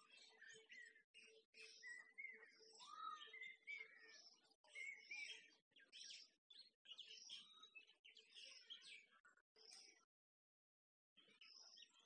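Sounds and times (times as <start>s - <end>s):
songbirds chirping and whistling: 0.0s - 9.1s.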